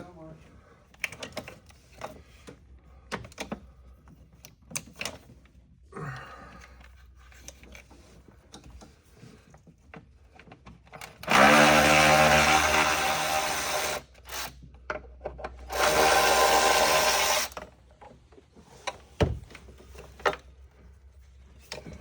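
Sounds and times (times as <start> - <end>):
cordless power tool whirring: 11.2 - 14.6, 15.7 - 17.7.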